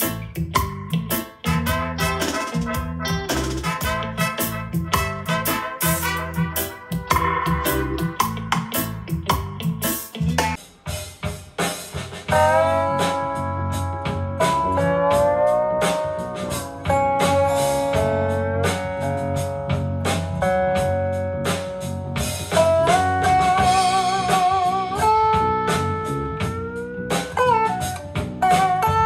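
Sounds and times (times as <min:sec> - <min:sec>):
heavy bass line: 0:00.0 - 0:10.6, 0:12.4 - 0:29.0
steady drums: 0:00.0 - 0:29.0
electric guitar solo: 0:01.4 - 0:08.7, 0:12.3 - 0:19.2, 0:22.6 - 0:29.0.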